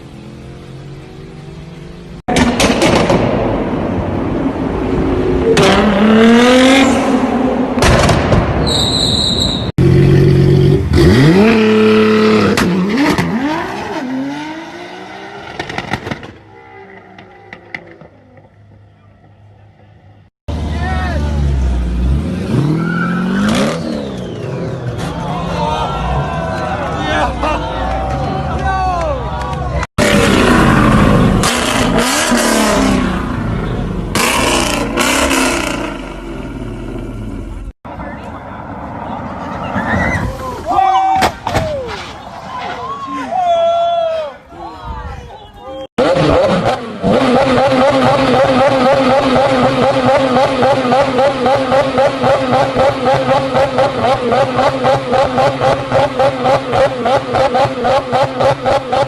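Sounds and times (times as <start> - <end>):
car engine revving: 9.8 - 19.9, 30.0 - 37.8, 46.0 - 59.0.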